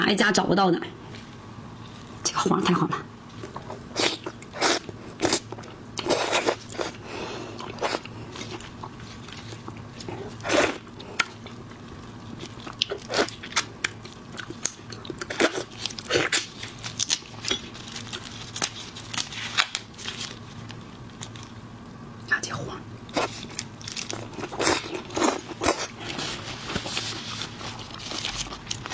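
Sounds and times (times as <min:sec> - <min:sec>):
chewing: 0:07.6 - 0:19.2.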